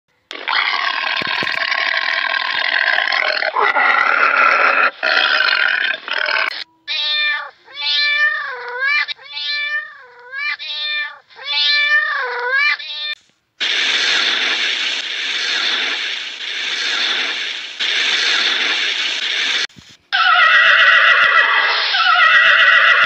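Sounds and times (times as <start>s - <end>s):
cat meowing: 6.7s - 13.2s.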